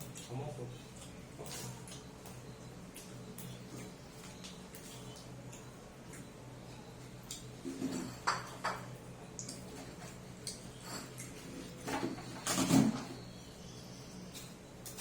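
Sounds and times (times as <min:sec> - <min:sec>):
chewing fried chicken: 0:00.0 - 0:07.7.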